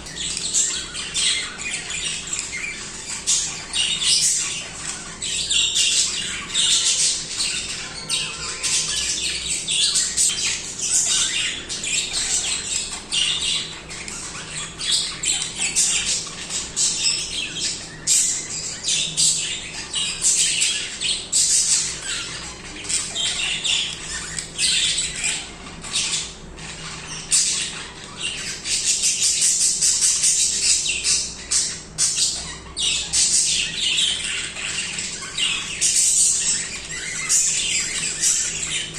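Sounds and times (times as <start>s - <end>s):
budgerigars chattering: 0.0s - 38.9s.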